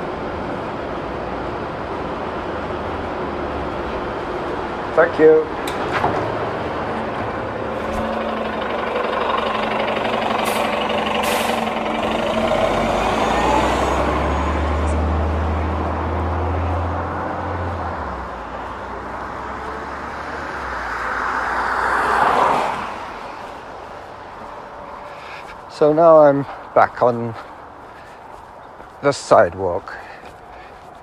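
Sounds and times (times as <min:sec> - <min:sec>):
bus engine droning: 0:00.0 - 0:31.0
traffic noise: 0:00.0 - 0:31.0
bus air brake hisses: 0:10.4 - 0:11.7.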